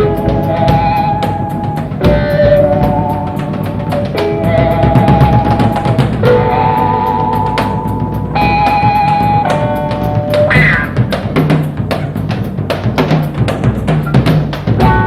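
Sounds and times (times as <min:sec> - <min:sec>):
electric guitar lead notes: 0:00.0 - 0:12.2, 0:14.7 - 0:15.0
rock drum beat: 0:00.0 - 0:15.0.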